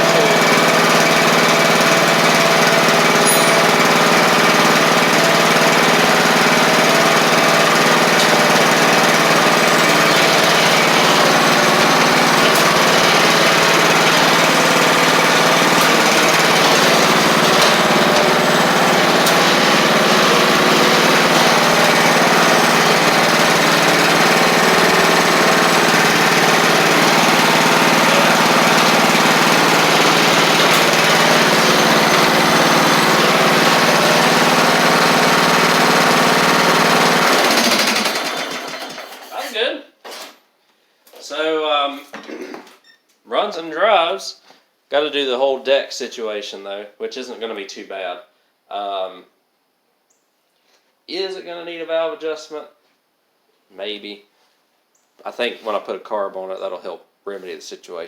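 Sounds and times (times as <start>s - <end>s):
lawn tractor engine running: 0.0s - 39.4s.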